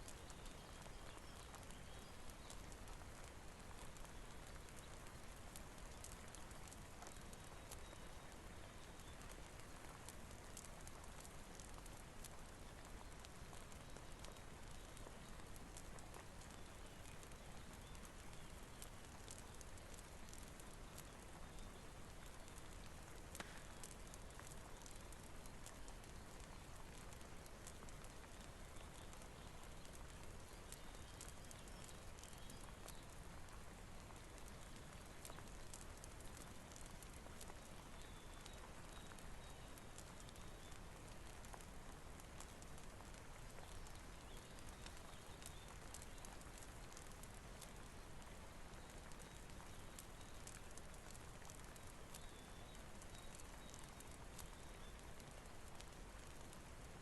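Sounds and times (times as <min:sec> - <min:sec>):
faint rain hiss: 0:00.0 - 0:57.0
wood fire crackling: 0:00.0 - 0:57.0.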